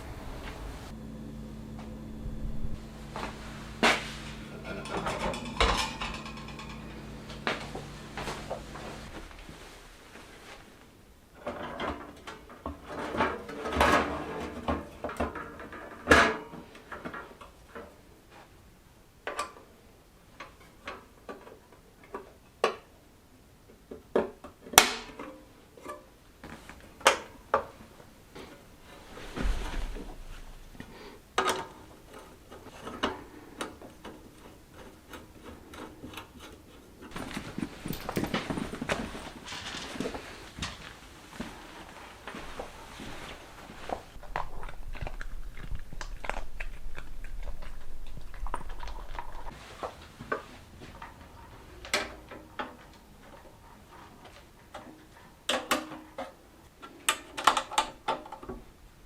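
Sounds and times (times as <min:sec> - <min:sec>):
tools clicking and knocking: 0:04.6 - 0:07.5
soft rustling: 0:07.0 - 0:11.0, 0:27.8 - 0:31.2, 0:37.0 - 0:51.6.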